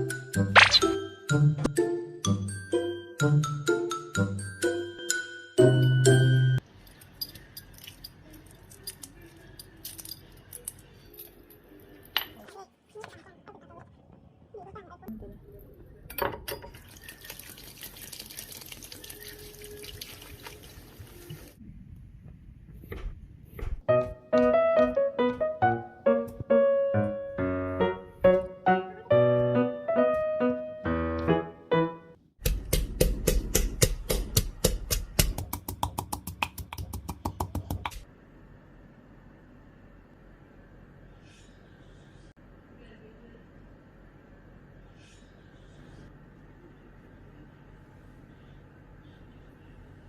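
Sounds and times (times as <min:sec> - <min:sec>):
knife chopping on cutting board: 0:32.4 - 0:38.0.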